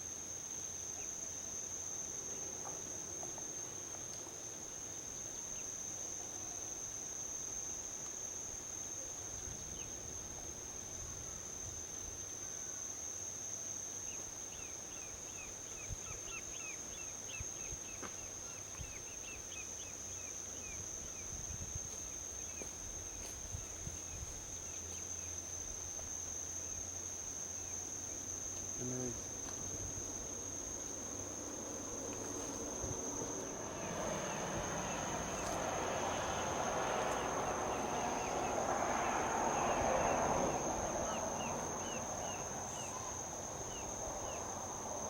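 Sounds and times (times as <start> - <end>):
crickets trilling: 0.0 - 45.0
distant highway traffic rumble: 27.0 - 45.0.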